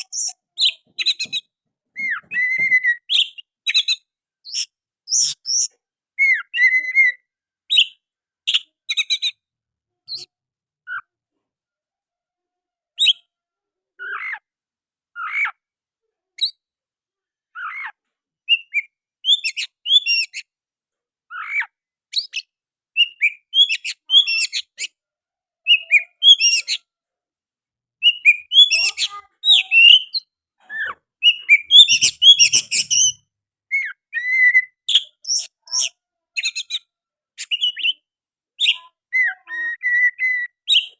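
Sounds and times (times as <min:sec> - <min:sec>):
bird whistles and chirps: 0:00.0 - 0:09.4, 0:17.6 - 0:20.5, 0:21.3 - 0:25.0, 0:25.7 - 0:26.8, 0:28.0 - 0:40.9.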